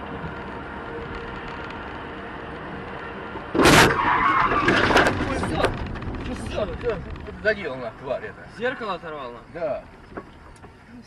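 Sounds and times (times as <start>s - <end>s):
road noise: 0.0s - 11.0s
vehicle engine: 0.0s - 11.0s
rattling and scraping: 3.5s - 10.8s
loud crash: 3.6s - 7.7s.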